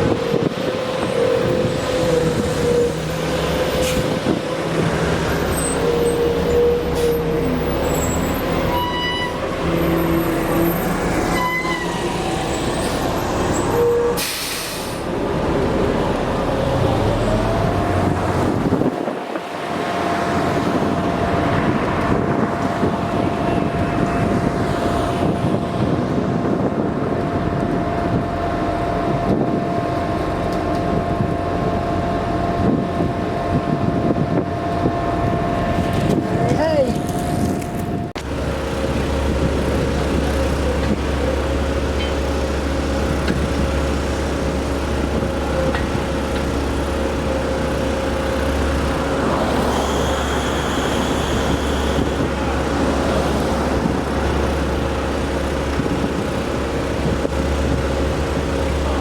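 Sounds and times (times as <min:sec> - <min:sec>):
street traffic: 0:00.0 - 0:59.0
truck engines running: 0:00.0 - 0:59.0.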